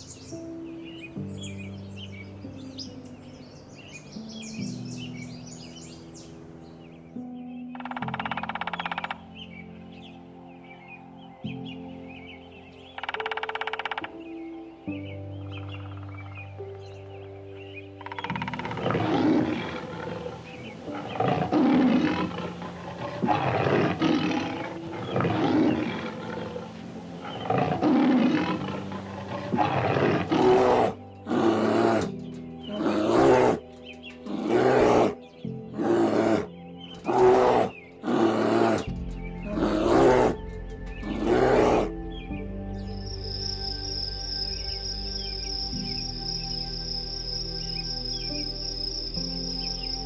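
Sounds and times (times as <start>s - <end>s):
soft background music: 0.0s - 50.0s
big cat roaring and grunting: 18.6s - 42.1s.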